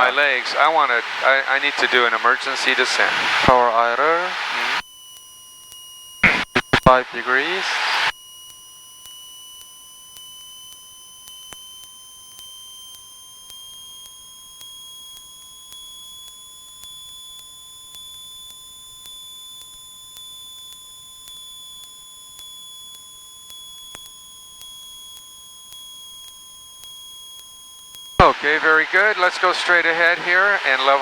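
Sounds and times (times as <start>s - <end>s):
high electrical whine: 0.0s - 4.8s, 6.2s - 8.2s, 22.8s - 31.0s
steady low electrical tone: 6.2s - 8.1s
faint regular ticks: 8.2s - 28.2s.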